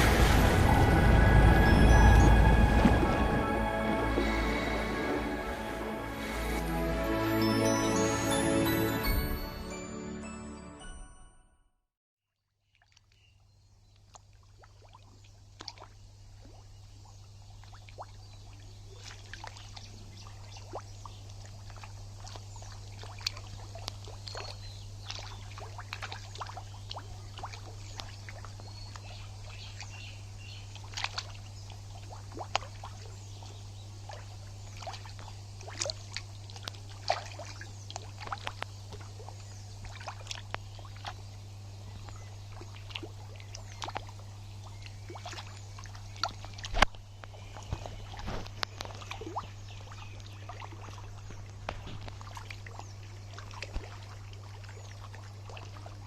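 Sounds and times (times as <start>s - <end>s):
sharp splashes: 0.0s - 9.5s, 14.1s - 16.8s, 17.4s - 30.0s, 30.6s - 41.4s, 42.4s - 56.0s
low hum: 0.0s - 9.7s
water splashing and trickling: 0.0s - 10.4s, 12.6s - 56.0s.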